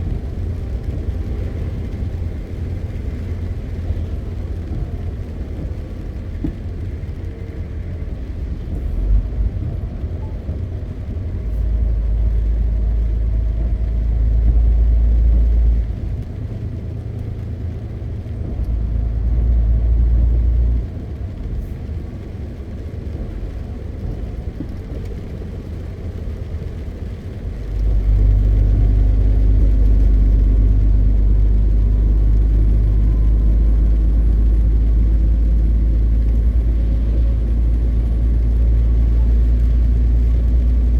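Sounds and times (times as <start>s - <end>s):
truck diesel engine rumbling: 0.0s - 40.9s.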